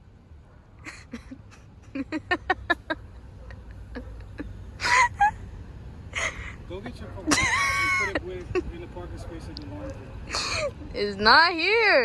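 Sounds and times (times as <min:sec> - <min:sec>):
person laughing under breath: 0:00.8 - 0:05.4, 0:06.2 - 0:06.6.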